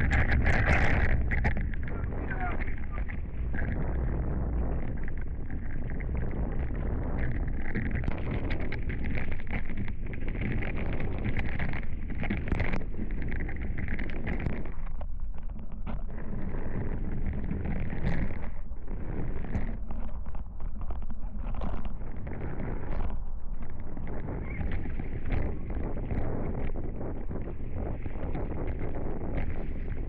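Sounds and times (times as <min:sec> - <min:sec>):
wind buffeting microphone: 0:00.0 - 0:15.0, 0:21.3 - 0:30.0.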